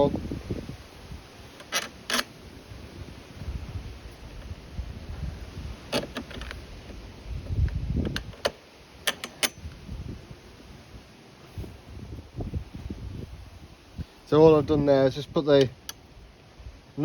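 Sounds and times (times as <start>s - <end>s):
small metal clicks and clinks: 8.1s - 9.7s.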